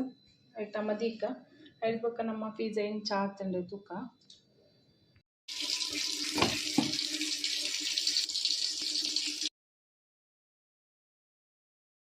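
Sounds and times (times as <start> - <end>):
tap water running into sink: 5.5 - 9.5
knocks: 6.4 - 7.0.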